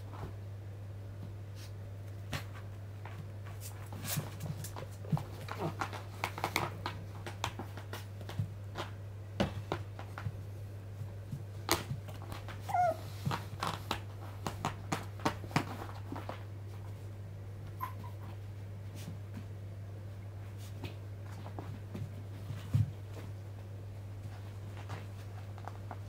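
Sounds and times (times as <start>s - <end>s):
puppies clicking and scuffling: 1.6s - 26.0s
puppy whimper: 12.6s - 13.2s, 17.8s - 18.4s.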